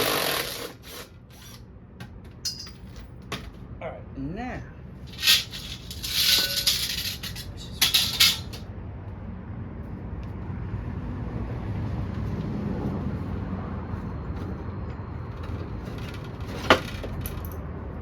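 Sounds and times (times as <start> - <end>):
impact wrench bursts: 0.0 - 1.6, 5.1 - 8.6.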